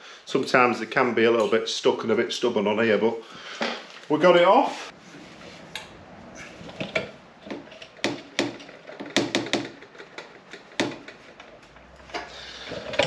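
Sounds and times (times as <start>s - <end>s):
metal parts clunking and clicking: 6.6s - 13.0s.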